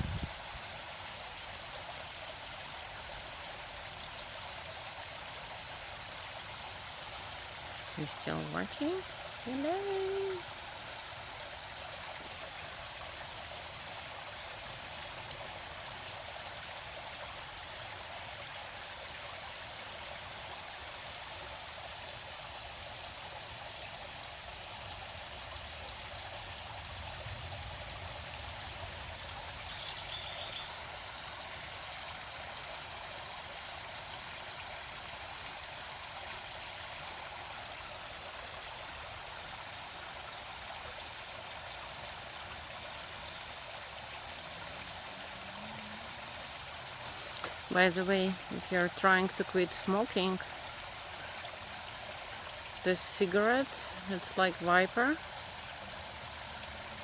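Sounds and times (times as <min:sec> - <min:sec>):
stream rushing and trickling: 0:00.0 - 0:57.0
faint high chirp: 0:29.7 - 0:30.8.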